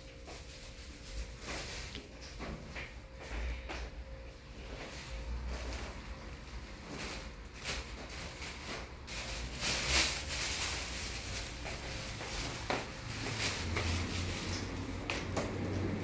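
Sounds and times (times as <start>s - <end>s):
rustling and handling noises: 0.0s - 16.0s.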